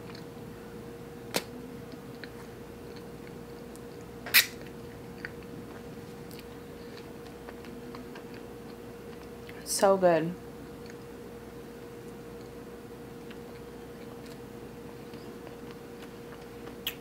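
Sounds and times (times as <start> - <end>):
faint hum: 0.0 - 17.0
person chewing: 1.9 - 9.6, 10.7 - 11.1, 13.2 - 17.0
mouth smacks: 4.2 - 5.4.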